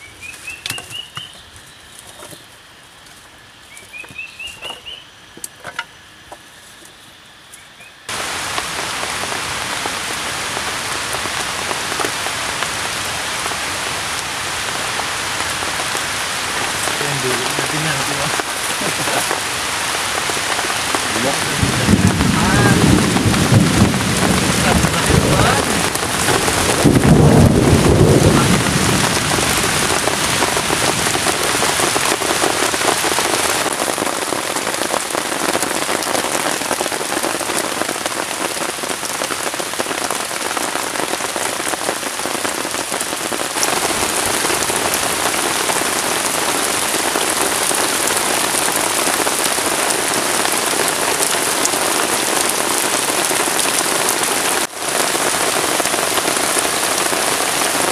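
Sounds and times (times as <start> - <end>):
heavy rain falling: 8.1 - 57.9
low rumble of thunder: 21.2 - 31.9.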